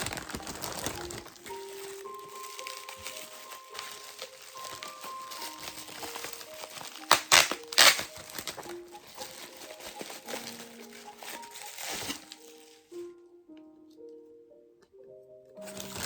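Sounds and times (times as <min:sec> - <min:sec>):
loud crackling: 0:00.0 - 0:11.4
packaging crinkling: 0:00.0 - 0:13.0, 0:15.6 - 0:16.0
background music: 0:00.0 - 0:16.0.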